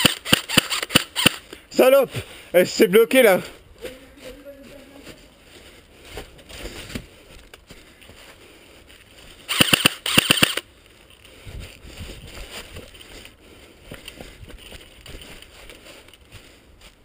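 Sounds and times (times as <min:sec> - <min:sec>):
airsoft rifle full-auto bursts: 0:00.0 - 0:01.4, 0:09.5 - 0:10.6.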